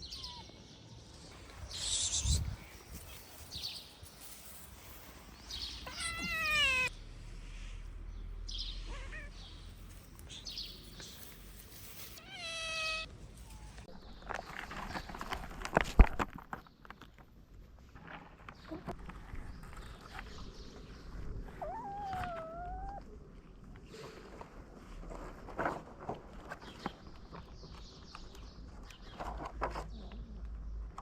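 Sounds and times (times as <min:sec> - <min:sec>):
cats meowing: 0:00.0 - 0:00.7, 0:05.8 - 0:06.9, 0:08.7 - 0:09.7, 0:12.2 - 0:13.9, 0:21.5 - 0:23.1
rustling: 0:08.8 - 0:17.0.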